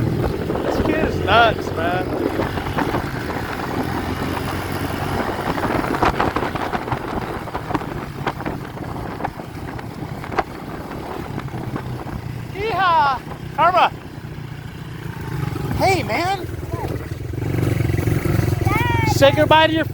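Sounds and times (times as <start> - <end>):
wind rushing: 0.0 - 13.5
vehicle engine running: 0.0 - 19.9.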